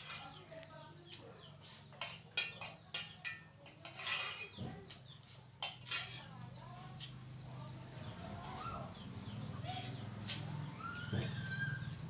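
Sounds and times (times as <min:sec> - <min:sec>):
cutlery clinking on a plate: 0:01.9 - 0:06.5.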